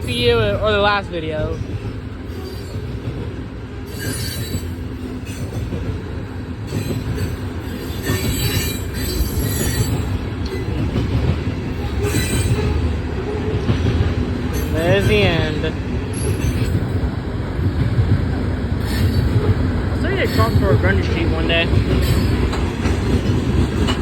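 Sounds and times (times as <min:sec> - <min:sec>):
freight train cars rumbling: 0:00.0 - 0:24.0
train wheel squeal: 0:02.2 - 0:03.0, 0:03.8 - 0:05.9, 0:06.6 - 0:11.0, 0:11.7 - 0:13.0, 0:14.5 - 0:17.0, 0:18.8 - 0:20.9, 0:21.9 - 0:24.0.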